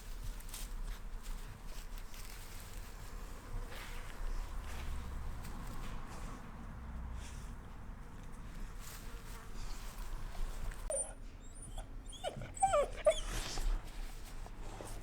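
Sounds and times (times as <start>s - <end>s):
puppies whimpering: 10.9s - 13.4s.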